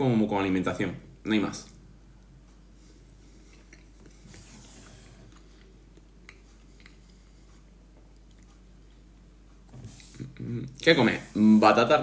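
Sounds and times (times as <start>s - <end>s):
faint chewing: 2.2s - 4.4s, 5.2s - 10.8s.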